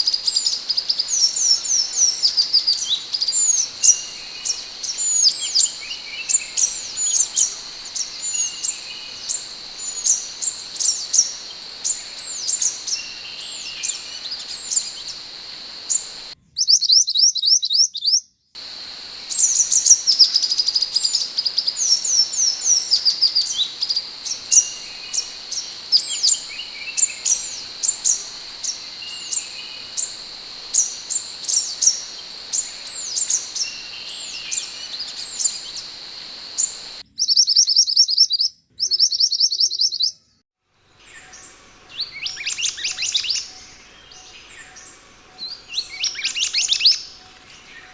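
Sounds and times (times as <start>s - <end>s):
bird whistling downward notes: 0.0s - 16.4s, 18.7s - 37.0s
fast high bird trill: 0.0s - 16.4s
steady high background tone: 0.0s - 16.4s, 18.6s - 37.0s.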